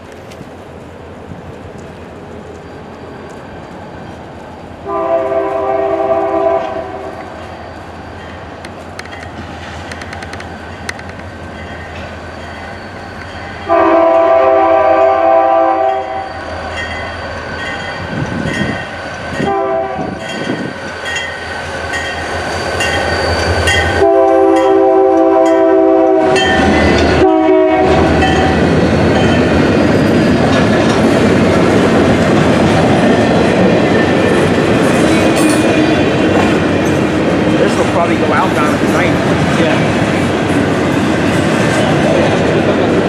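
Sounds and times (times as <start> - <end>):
train wheels rumbling and clattering: 0.0 - 43.0
train horn blasts: 4.8 - 7.3, 13.6 - 16.4, 19.4 - 20.3, 23.7 - 28.6.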